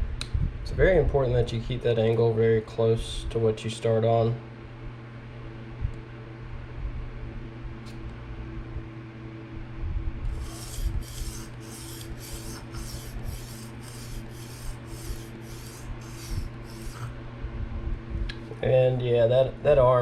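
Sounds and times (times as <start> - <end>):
steady low hum: 0.0 - 20.0
knife scraping on sharpening plate: 10.3 - 17.1.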